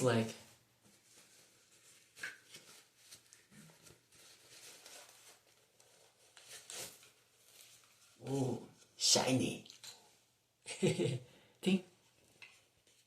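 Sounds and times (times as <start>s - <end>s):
faint rustling of packaging: 0.0s - 9.0s, 11.9s - 13.0s.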